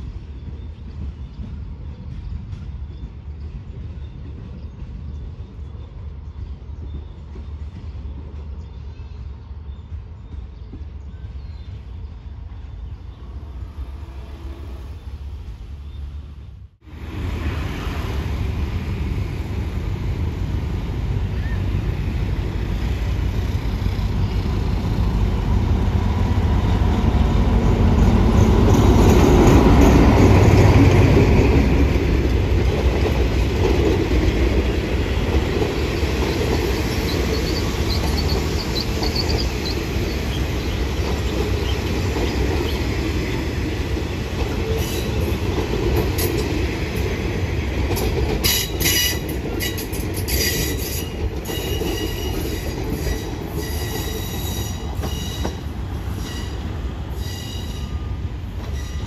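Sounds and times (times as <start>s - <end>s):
coaches rumbling on rails: 0.0s - 59.0s
diesel locomotive passing: 0.0s - 59.0s
wheel squeals: 36.4s - 42.9s.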